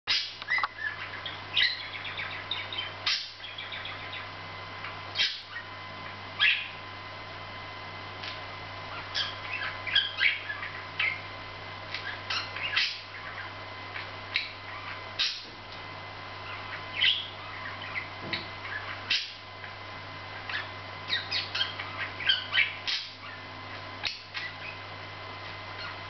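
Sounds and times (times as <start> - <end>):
budgerigar chattering and warbling: 0.1 - 4.3, 5.2 - 5.7, 6.4 - 6.8, 8.9 - 11.2, 12.0 - 13.6, 14.3 - 15.5, 16.4 - 19.4, 20.4 - 24.8
steady low hum: 0.1 - 26.0.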